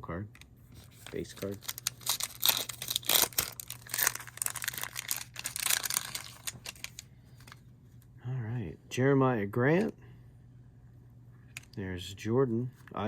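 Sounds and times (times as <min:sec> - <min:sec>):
foil wrapper crinkling and tearing: 0:00.8 - 0:07.6.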